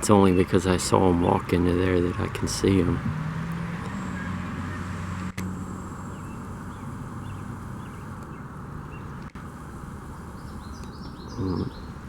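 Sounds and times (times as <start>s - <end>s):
low traffic rumble: 0.0s - 12.0s
faint bird chirps: 10.0s - 12.0s.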